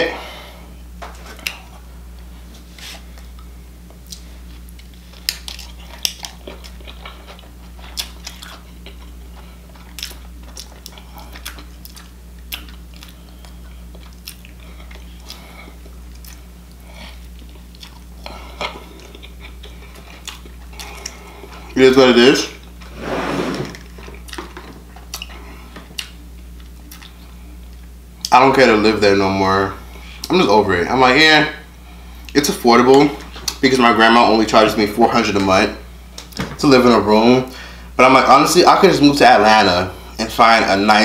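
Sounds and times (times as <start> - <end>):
person chewing a burger: 1.3 - 21.8, 23.9 - 28.3.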